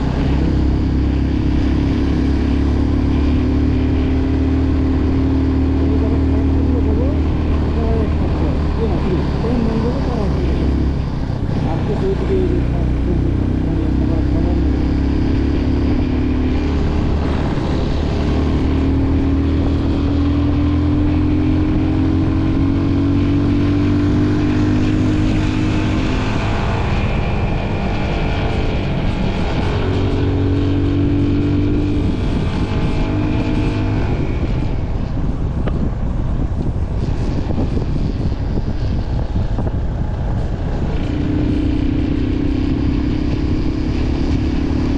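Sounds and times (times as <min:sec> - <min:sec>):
motorcycle engine running: 0:00.0 - 0:27.9.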